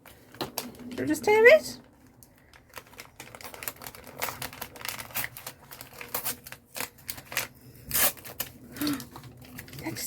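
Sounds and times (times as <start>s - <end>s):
paper tearing and crinkling: 2.6s - 10.0s.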